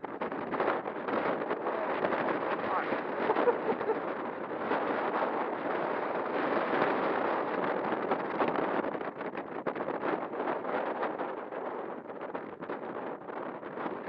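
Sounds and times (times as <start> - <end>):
gusty wind buffeting microphone: 0.0 - 14.0.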